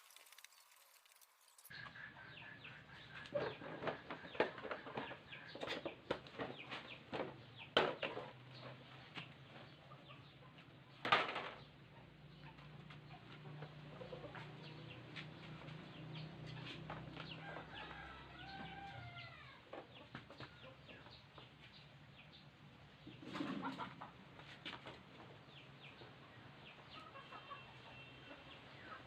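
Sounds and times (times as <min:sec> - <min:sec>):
chickens clucking: 0:01.7 - 0:11.0, 0:11.6 - 0:29.0.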